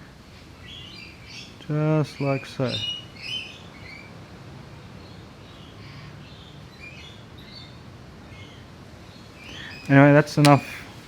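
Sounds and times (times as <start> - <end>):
low background noise: 0.0 - 11.0
faint bird chirps: 5.0 - 10.0.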